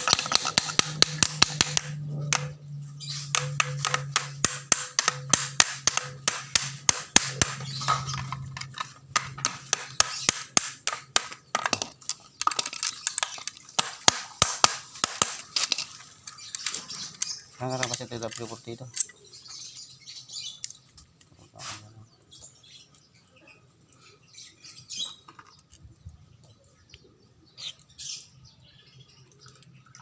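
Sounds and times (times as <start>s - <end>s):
hand tools tapping and clicking: 0.0s - 19.6s.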